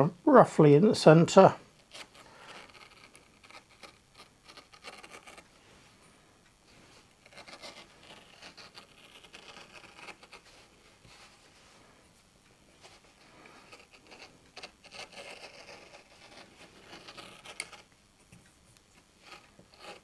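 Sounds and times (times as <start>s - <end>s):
blade scraping through felt: 6.7s - 11.8s, 12.8s - 17.9s, 19.1s - 20.0s.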